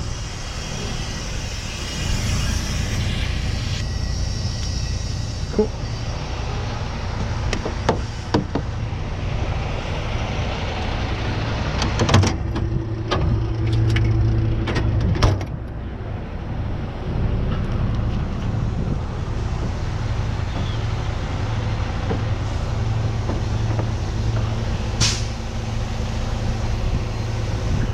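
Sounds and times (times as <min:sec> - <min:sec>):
steady hum: 0:00.0 - 0:14.6
truck engine idling: 0:00.0 - 0:15.0, 0:15.6 - 0:27.9.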